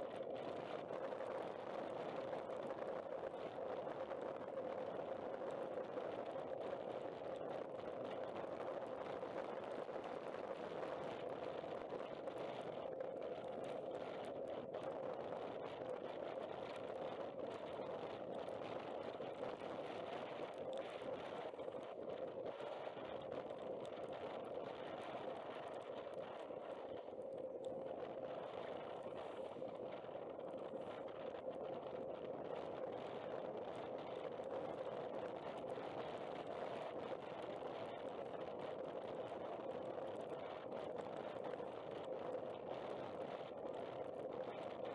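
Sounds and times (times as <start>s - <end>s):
muffled wind noise: 0.0s - 44.9s.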